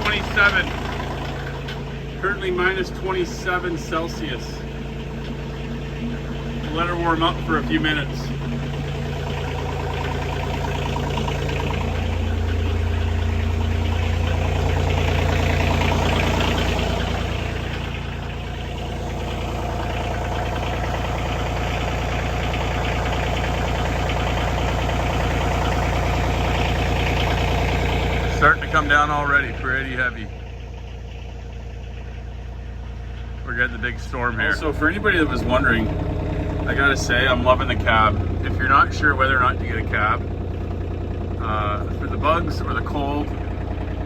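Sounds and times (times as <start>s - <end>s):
diesel engine idling: 0.0s - 44.0s.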